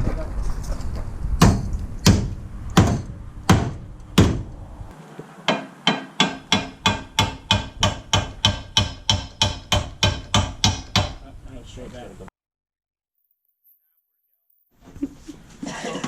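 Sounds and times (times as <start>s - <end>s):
hammer striking metal: 1.4s - 4.5s, 5.5s - 11.2s.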